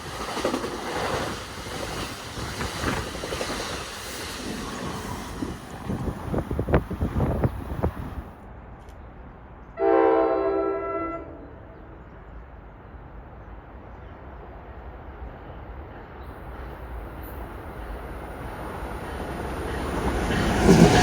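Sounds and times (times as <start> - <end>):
train rumbling: 0.0 - 21.0
wind noise on microphone: 0.5 - 8.4
train horn chord: 9.8 - 11.7.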